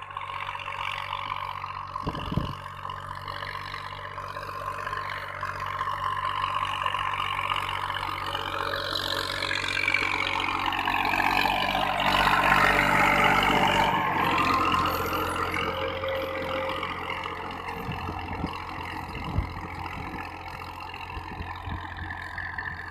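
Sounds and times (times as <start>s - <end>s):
tractor engine running: 0.0s - 22.9s.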